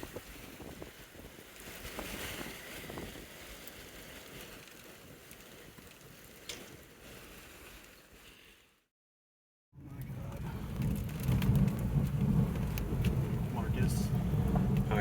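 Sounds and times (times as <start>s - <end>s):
gusty wind on microphone: 0.0s - 5.3s, 9.8s - 15.0s.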